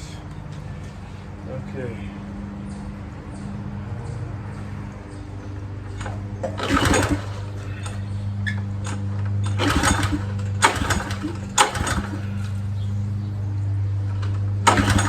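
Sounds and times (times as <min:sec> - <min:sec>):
recoil starter cranking engine: 0:06.0 - 0:12.6, 0:14.2 - 0:15.0.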